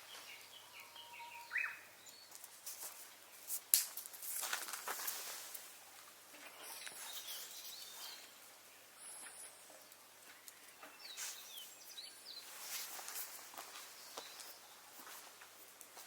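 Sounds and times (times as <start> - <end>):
small birds chirping: 0.0 - 3.6, 6.4 - 15.3
twig fire crackling: 2.0 - 6.2, 6.8 - 16.0.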